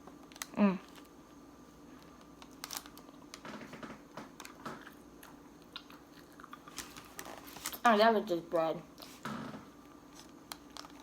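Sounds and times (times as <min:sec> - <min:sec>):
person chewing crunchy food: 0:04.4 - 0:07.6.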